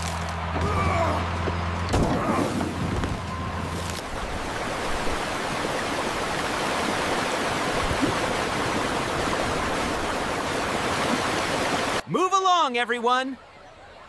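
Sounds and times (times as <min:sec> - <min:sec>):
rushing water hiss: 0:03.8 - 0:12.0.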